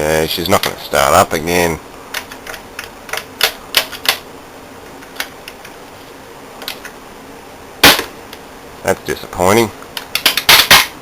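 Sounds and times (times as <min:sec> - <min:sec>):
sharp irregular clicks: 0:02.1 - 0:04.2.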